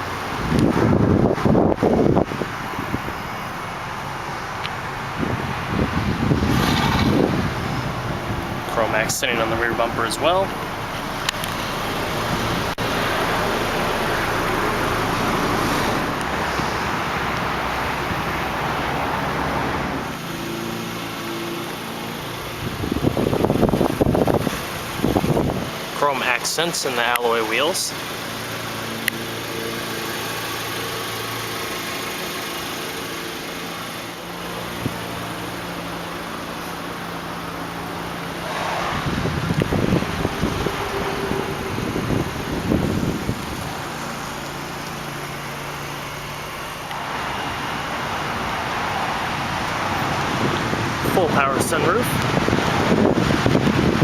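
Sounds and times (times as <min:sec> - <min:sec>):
car engine idling: 0:00.0 - 0:54.0
wind rumbling on microphone: 0:00.3 - 0:03.4, 0:04.8 - 0:10.0, 0:22.5 - 0:25.8, 0:38.4 - 0:44.5, 0:48.5 - 0:54.0.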